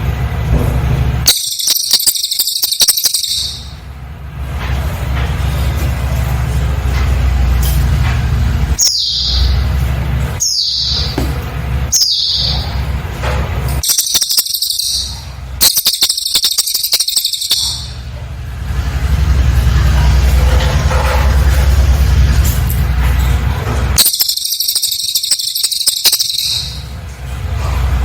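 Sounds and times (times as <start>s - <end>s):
bird buzzing trills: 1.3s - 3.7s, 13.8s - 17.9s, 24.0s - 26.8s
bird singing high notes: 1.3s - 3.8s, 8.8s - 9.7s, 10.4s - 11.2s, 11.9s - 12.8s, 13.8s - 18.0s, 24.0s - 27.0s.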